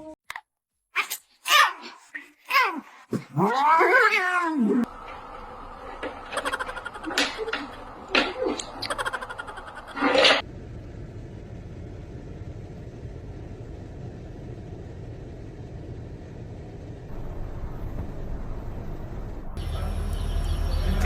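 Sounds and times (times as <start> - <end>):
steady low rumbling noise: 10.4 - 21.0.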